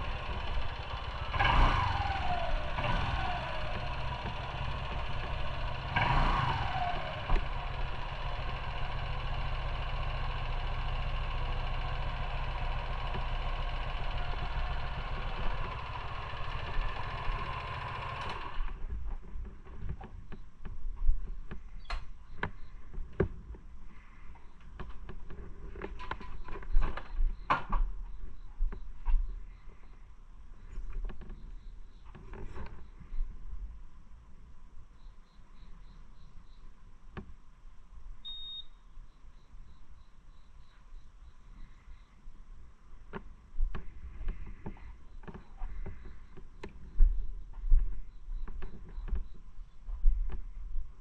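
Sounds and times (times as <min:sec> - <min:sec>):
motorcycle engine idling: 0:00.0 - 0:19.0
sharp clicks and knocks: 0:24.4 - 0:28.0, 0:43.1 - 0:49.4.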